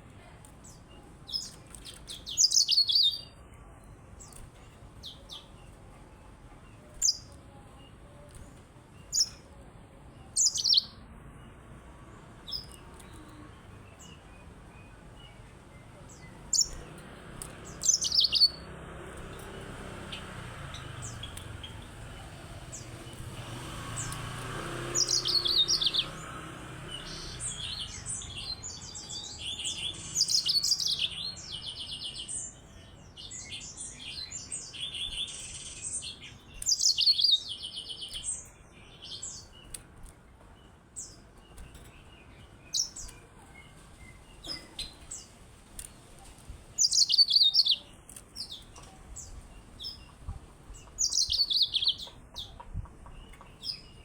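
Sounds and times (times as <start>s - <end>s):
canary singing: 0.7s - 3.5s, 6.7s - 8.0s, 10.2s - 11.0s, 12.4s - 39.8s, 41.0s - 45.9s, 46.7s - 54.0s.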